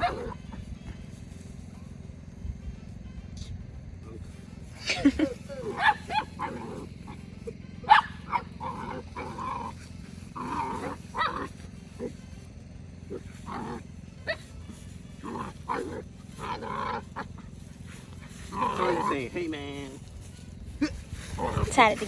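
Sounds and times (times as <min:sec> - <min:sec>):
dog growling and grunting: 0:00.0 - 0:00.5, 0:04.9 - 0:07.2, 0:08.3 - 0:12.1, 0:13.1 - 0:13.8, 0:15.2 - 0:17.5, 0:18.4 - 0:20.0, 0:20.8 - 0:21.8.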